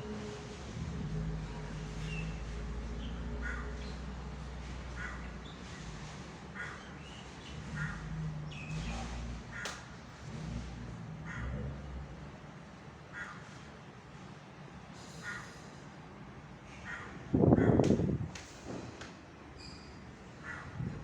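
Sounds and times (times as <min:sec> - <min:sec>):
crow cawing: 0:03.4 - 0:03.8, 0:11.2 - 0:11.5, 0:13.1 - 0:13.5, 0:15.2 - 0:15.6, 0:16.8 - 0:17.8, 0:20.4 - 0:20.8.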